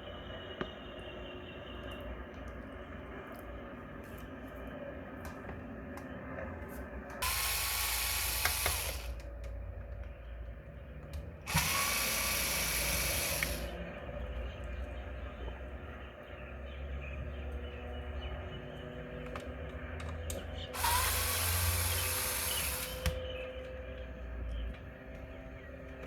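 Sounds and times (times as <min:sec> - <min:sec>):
low background hum: 0:00.0 - 0:26.0
handheld power tool whining: 0:07.2 - 0:09.2, 0:11.5 - 0:13.8, 0:20.7 - 0:23.4.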